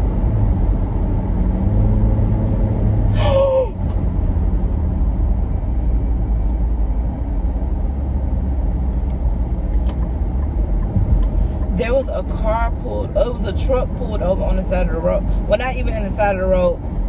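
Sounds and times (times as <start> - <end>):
car road and engine noise: 0.0 - 17.0
short falling vocal exclamation: 3.2 - 3.8.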